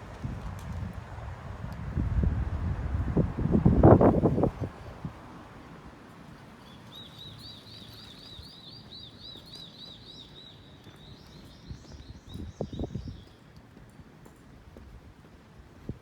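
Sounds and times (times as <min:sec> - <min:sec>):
outdoor background noise: 0:00.0 - 0:16.0
small bird singing: 0:06.6 - 0:13.4.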